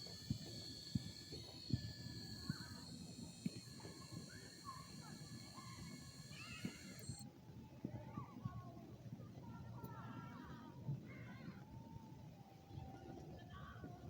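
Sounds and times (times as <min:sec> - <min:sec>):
steady high whine: 0:00.0 - 0:07.2.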